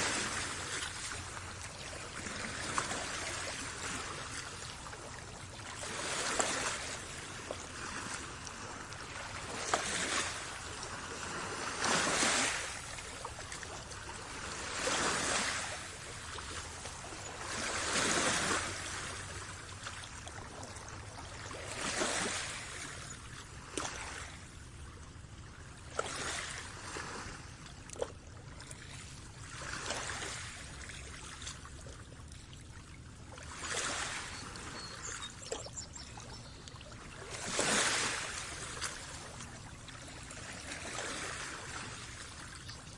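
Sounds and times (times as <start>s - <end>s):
small waves washing in: 0.0s - 42.9s.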